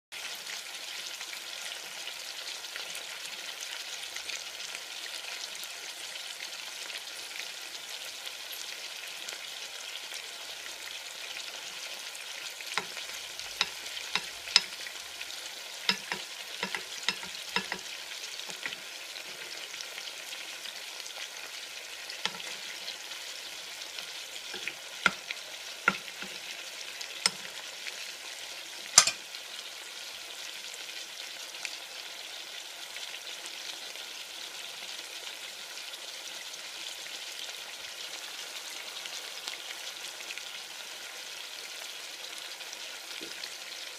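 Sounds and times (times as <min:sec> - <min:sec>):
chicken frying sizzle: 0:00.1 - 0:43.9
sharp clicks and knocks: 0:15.9 - 0:17.8, 0:25.9 - 0:26.4, 0:29.0 - 0:29.2.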